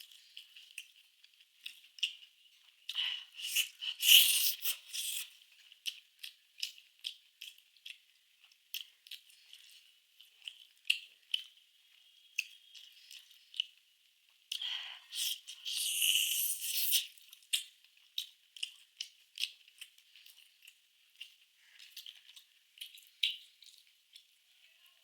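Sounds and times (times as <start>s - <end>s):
eating clicks and crackles: 0.0s - 11.7s, 12.4s - 24.4s.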